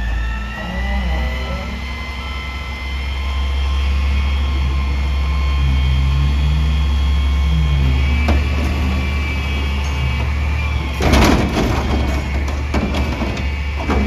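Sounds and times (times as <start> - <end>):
high whine rising in pitch: 0.0 - 10.8
garbage truck diesel engine rumbling: 0.0 - 14.0.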